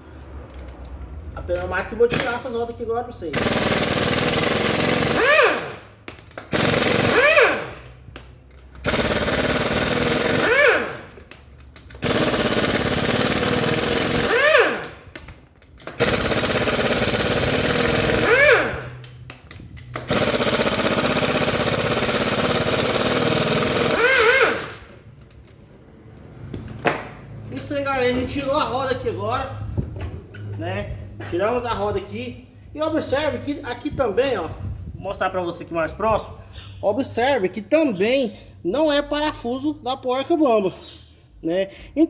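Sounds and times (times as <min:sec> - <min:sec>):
pneumatic impact wrench rattling: 0:02.0 - 0:02.6, 0:03.2 - 0:25.8.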